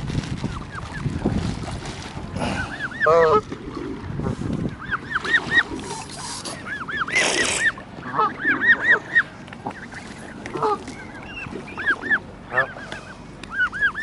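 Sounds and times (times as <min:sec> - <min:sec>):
geese honking: 0:02.6 - 0:03.6, 0:04.2 - 0:14.0.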